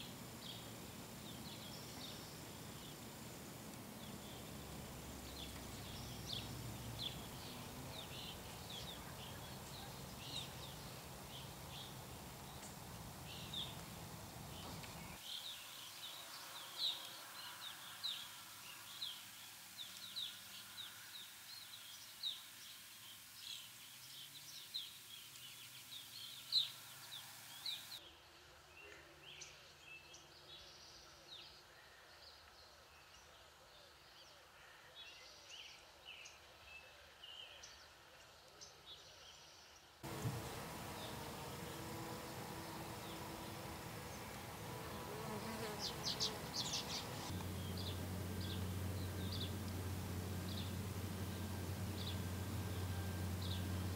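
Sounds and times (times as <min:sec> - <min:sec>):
small birds chirping: 0:00.0 - 0:28.0, 0:38.6 - 0:53.9
low background rumble: 0:40.0 - 0:45.1, 0:45.9 - 0:53.9.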